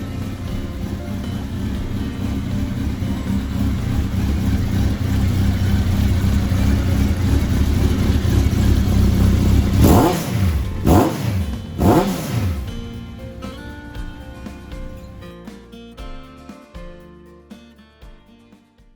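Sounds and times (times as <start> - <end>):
motorcycle engine revs blipped: 0.0 - 15.3
motorcycle engine idling: 0.0 - 15.5.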